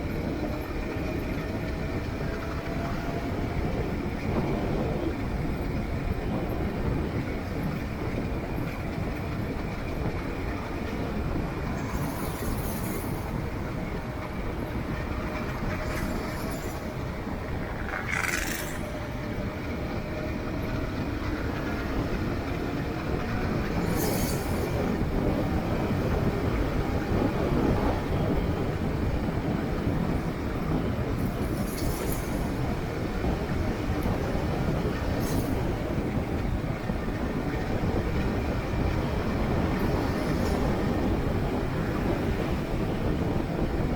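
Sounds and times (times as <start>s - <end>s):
vehicle rumble and road noise: 0.0s - 43.9s.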